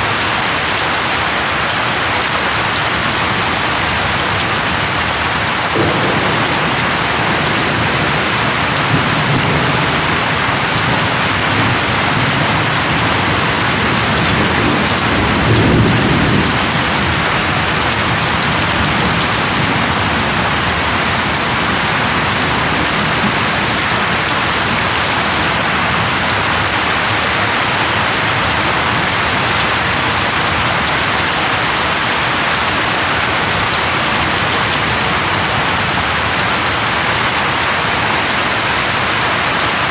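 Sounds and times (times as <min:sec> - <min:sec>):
steady rain: 0:00.0 - 0:39.9
distant thunder rumble: 0:03.4 - 0:31.2.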